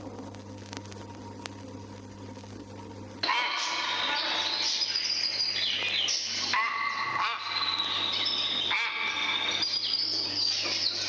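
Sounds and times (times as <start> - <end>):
low mains hum: 0.0 - 11.0
myna bird calling: 3.2 - 11.0.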